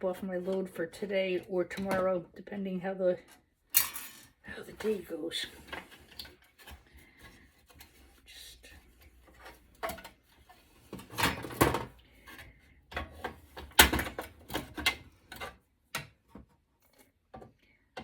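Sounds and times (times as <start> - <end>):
metal parts clattering: 3.7 - 4.4.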